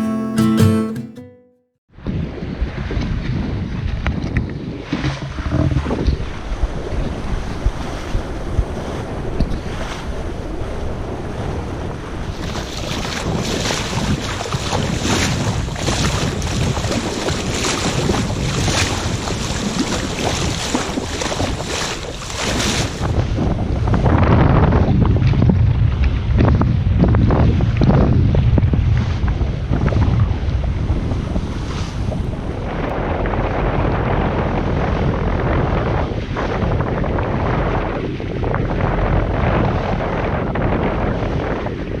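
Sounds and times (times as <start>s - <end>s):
water rushing past boat: 2.0s - 24.1s
wind buffeting microphone: 2.0s - 42.0s
waves splashing against hull: 2.4s - 26.2s, 28.8s - 41.9s.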